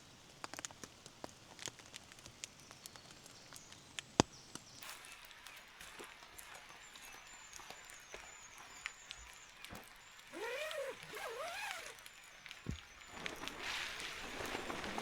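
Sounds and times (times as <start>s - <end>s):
faint hiss: 0.0s - 15.0s
small drips and clicks: 0.0s - 15.0s.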